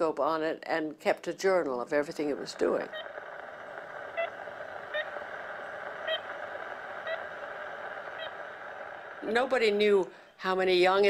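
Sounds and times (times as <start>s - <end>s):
recording hiss: 1.2s - 11.0s
woodpecker tooting calls: 2.8s - 9.2s.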